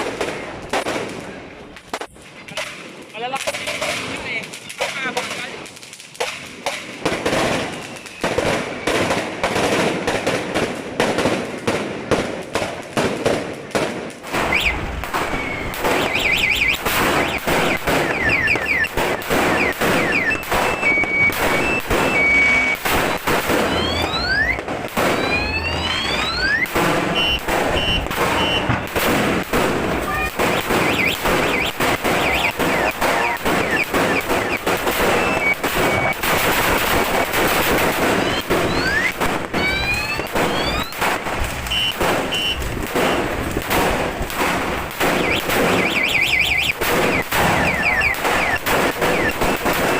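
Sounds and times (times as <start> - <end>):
firecracker belt crackling: 0.0 - 49.9
high whistling tones: 14.4 - 28.9, 30.1 - 36.2, 38.0 - 41.0, 45.2 - 49.5.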